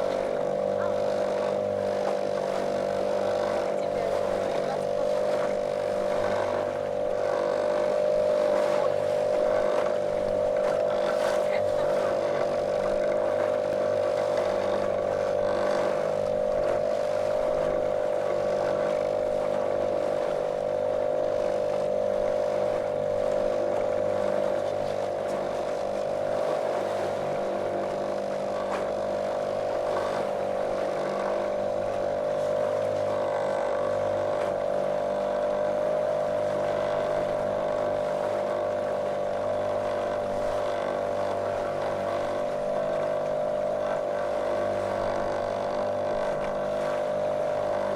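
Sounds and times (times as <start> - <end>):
motorboat motor droning: 0.0 - 47.9.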